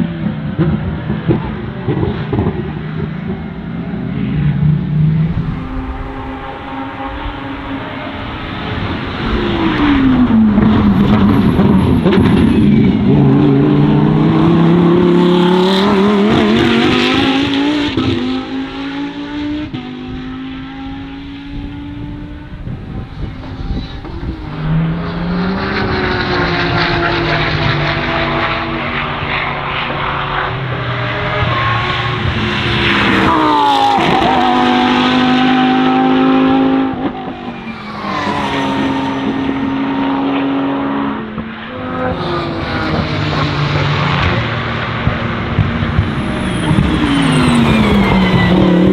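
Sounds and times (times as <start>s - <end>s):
race car engines at full throttle: 0.0s - 48.9s.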